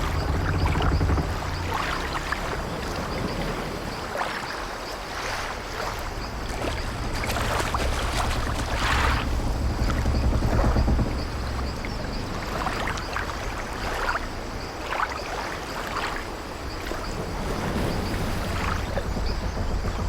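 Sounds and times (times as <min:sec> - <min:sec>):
wooden creaks: 0:00.0 - 0:03.4
low rumble: 0:00.0 - 0:03.8, 0:06.1 - 0:14.6, 0:16.6 - 0:20.0
splashes: 0:00.0 - 0:19.9
waves washing against hull: 0:00.0 - 0:20.0.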